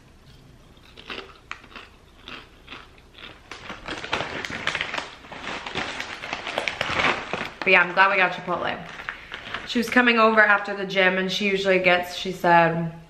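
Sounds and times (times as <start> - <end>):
crunching tortilla chips: 0.8 - 8.2, 8.8 - 9.9.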